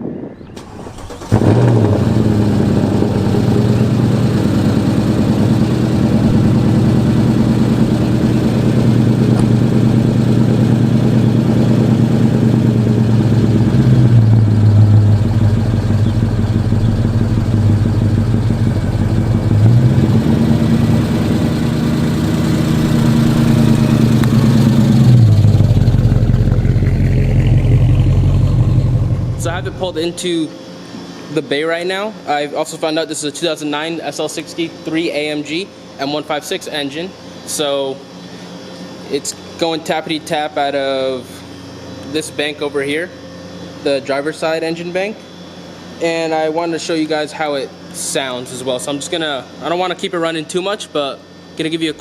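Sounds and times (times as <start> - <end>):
car engine starting and running: 0.4 - 30.2
engine lifters tapping: 2.2 - 30.2.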